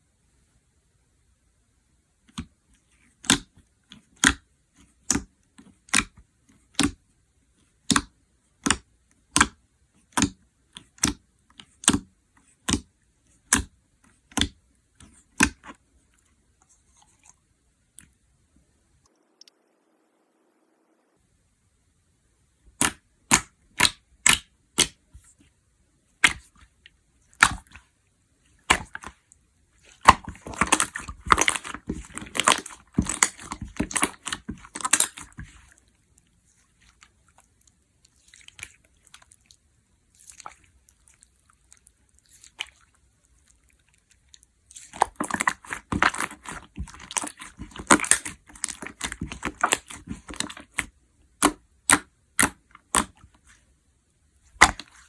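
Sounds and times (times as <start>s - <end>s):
slime popping and crackling: 29.8s - 35.7s, 44.1s - 53.3s, 54.6s - 55.0s.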